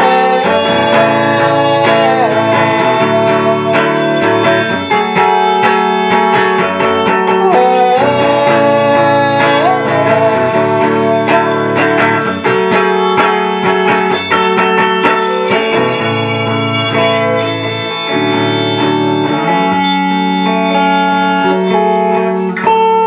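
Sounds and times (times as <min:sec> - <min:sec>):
live band playing with guitars: 0:00.0 - 0:23.0
sliding lead guitar note: 0:00.0 - 0:23.0.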